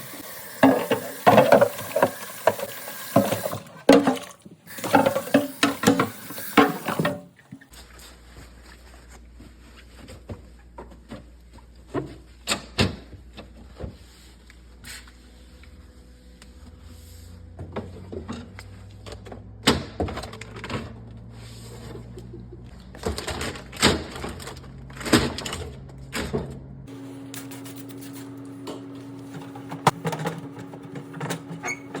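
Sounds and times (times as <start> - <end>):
fridge parts knocking and clattering: 0.5 - 7.6, 27.3 - 32.0.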